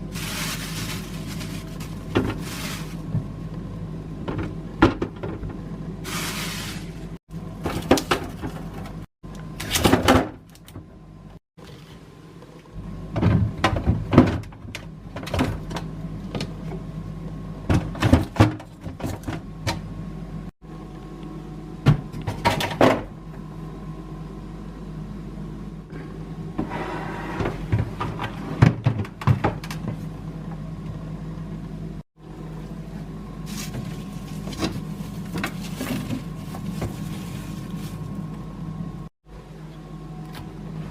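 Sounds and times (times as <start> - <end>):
steady low hum: 0.0 - 9.7, 10.5 - 40.9
packaging rustling: 0.1 - 3.0.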